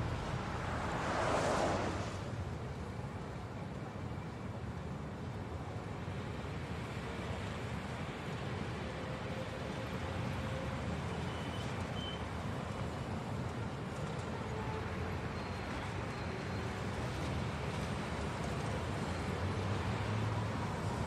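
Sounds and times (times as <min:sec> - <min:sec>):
tyres rolling on pavement: 0:00.0 - 0:05.1, 0:10.3 - 0:21.0.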